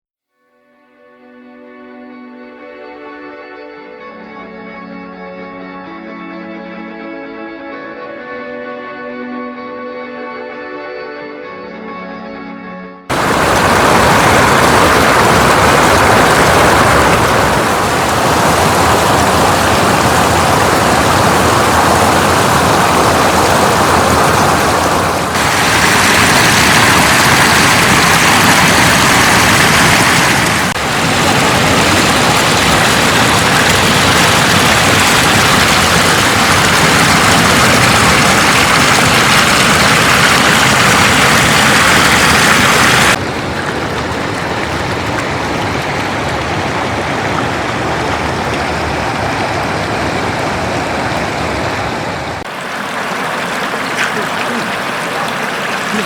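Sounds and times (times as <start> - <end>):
floodwater rushing across road: 13.1 - 56.0.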